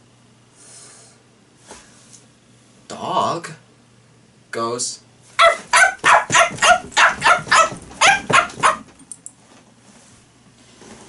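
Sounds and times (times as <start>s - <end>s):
man imitating dog barks: 5.4s - 8.8s.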